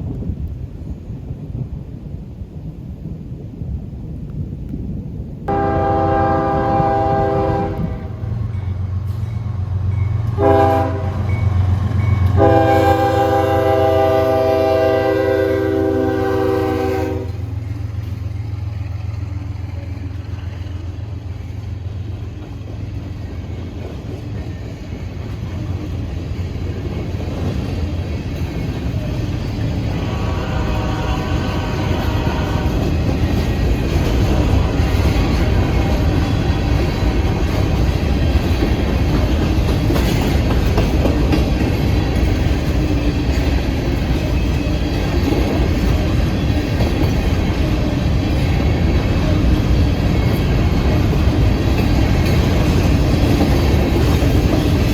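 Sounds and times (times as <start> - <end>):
locomotive and train rumble: 0.0 - 54.9
locomotive air horn: 5.5 - 8.4, 10.4 - 11.4, 12.2 - 17.6, 29.9 - 33.0.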